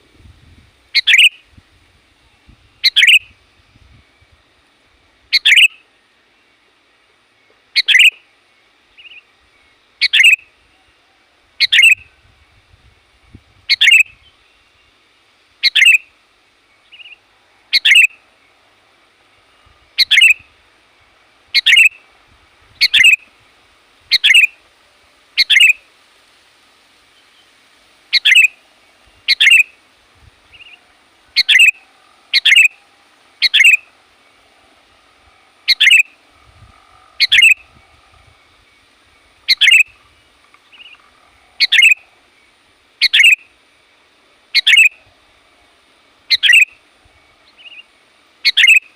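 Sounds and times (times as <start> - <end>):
bulbul sharp calls: 0.9 - 1.5, 2.8 - 3.4, 5.3 - 5.8, 7.6 - 8.2, 10.0 - 10.5, 11.6 - 12.2, 13.7 - 14.3, 15.6 - 16.1, 16.8 - 18.3, 19.9 - 20.5, 21.5 - 22.1, 22.8 - 23.3, 24.1 - 24.6, 25.4 - 25.8, 28.1 - 28.6, 29.2 - 29.8, 30.5 - 43.5, 44.5 - 45.2, 46.3 - 48.9.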